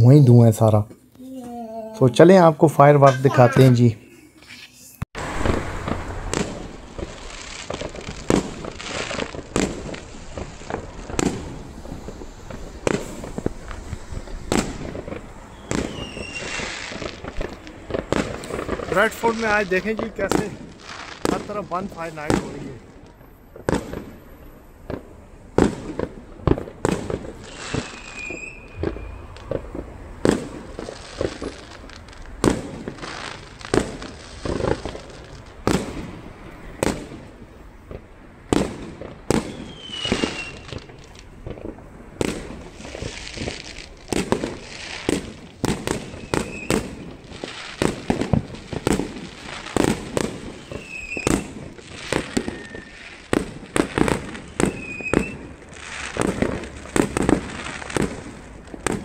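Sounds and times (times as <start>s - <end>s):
fireworks crackling: 2.0s - 59.0s
fireworks bangs: 5.2s - 59.0s
short falling whistles: 15.5s - 16.6s, 27.5s - 29.4s, 39.5s - 40.7s, 46.1s - 46.8s, 50.7s - 51.4s, 52.2s - 53.1s, 54.6s - 55.5s.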